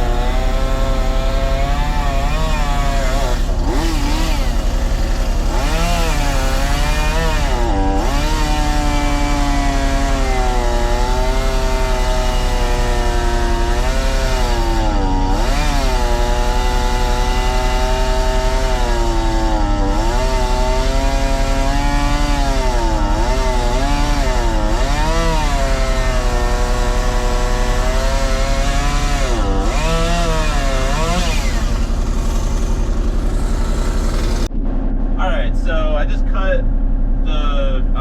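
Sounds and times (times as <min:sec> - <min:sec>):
chainsaw cutting wood: 0:00.0 - 0:34.5.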